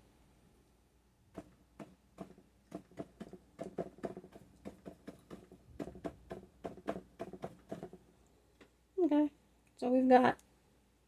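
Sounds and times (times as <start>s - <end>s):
paintbrush tapping on canvas: 1.4s - 8.0s.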